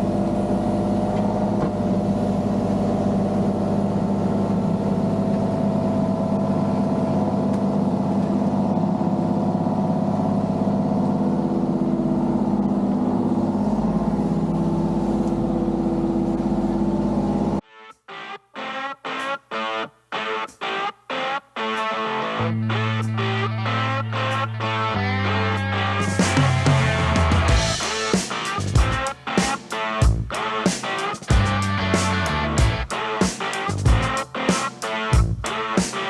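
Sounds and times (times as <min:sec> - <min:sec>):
vehicle engine running: 0:00.0 - 0:17.6, 0:22.4 - 0:29.1, 0:30.0 - 0:30.4, 0:31.3 - 0:32.9, 0:33.7 - 0:34.2.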